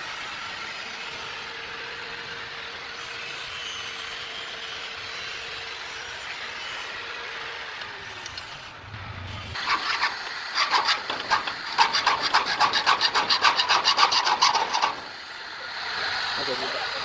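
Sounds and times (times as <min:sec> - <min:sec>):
hand saw cutting: 0:09.5 - 0:15.4.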